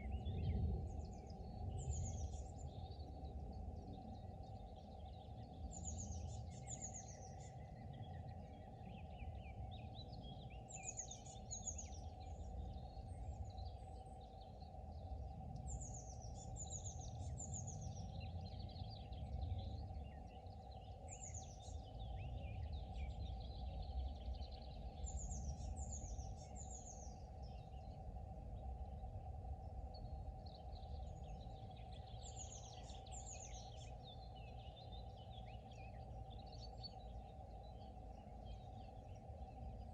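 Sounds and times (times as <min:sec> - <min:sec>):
faint constant hum: 0:00.0 - 0:39.9
small songbirds singing: 0:00.0 - 0:39.9
steady low rumble: 0:00.0 - 0:39.9.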